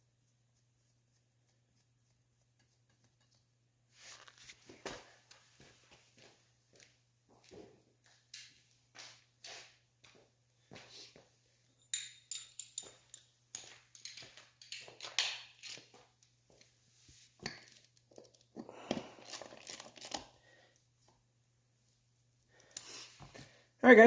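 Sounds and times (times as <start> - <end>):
hand tools and metal parts clinking: 11.7 - 16.2.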